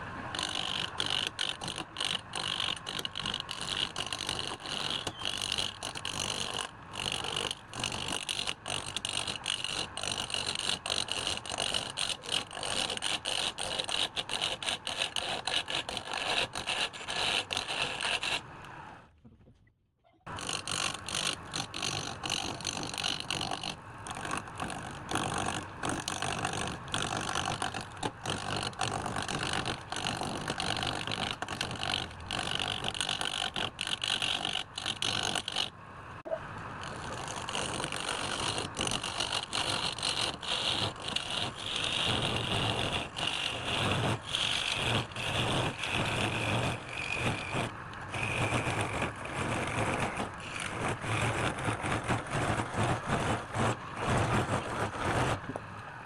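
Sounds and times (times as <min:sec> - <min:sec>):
power tool cutting wood: 0:20.3 - 0:35.7, 0:36.8 - 0:55.4.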